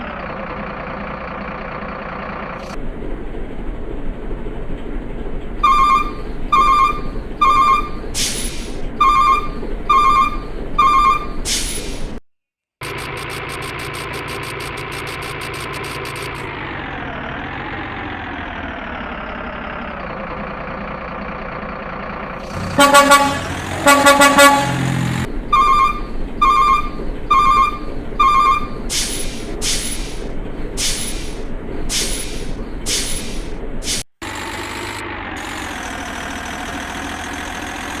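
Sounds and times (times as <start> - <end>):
truck engine hum with ticking: 0.0 - 12.2, 12.8 - 38.0
horn honks: 22.4 - 28.7
truck horn blasts: 22.4 - 28.7.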